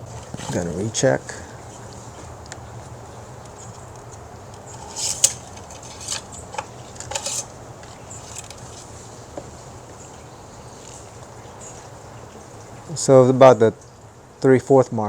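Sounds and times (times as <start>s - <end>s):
dipstick scraping and clicking: 0.0s - 10.2s.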